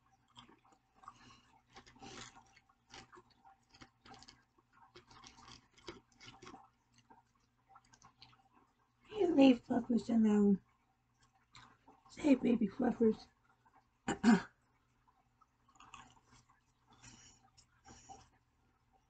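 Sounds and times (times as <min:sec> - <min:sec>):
faint crunchy chewing: 0:00.0 - 0:08.9, 0:10.8 - 0:12.1, 0:14.7 - 0:19.0
wet mouth clicks: 0:15.7 - 0:18.3.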